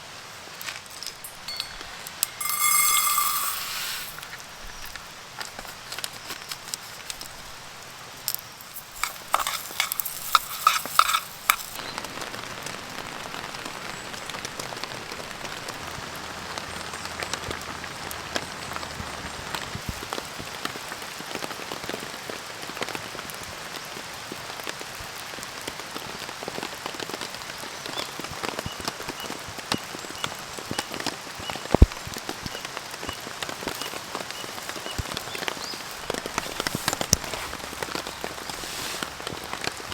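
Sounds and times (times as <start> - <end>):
light clinks: 0.9 - 5.0, 8.3 - 11.8
rain pattering: 2.1 - 39.9.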